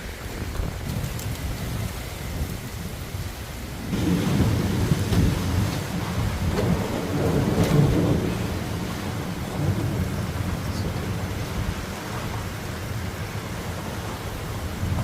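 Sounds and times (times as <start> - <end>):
steady rain: 0.0 - 15.0
thunder rumbling: 0.0 - 15.0.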